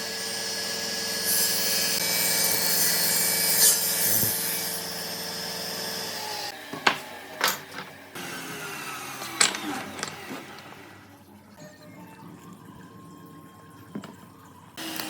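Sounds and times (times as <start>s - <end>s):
power tool running on wood: 0.0s - 11.0s, 14.8s - 15.0s.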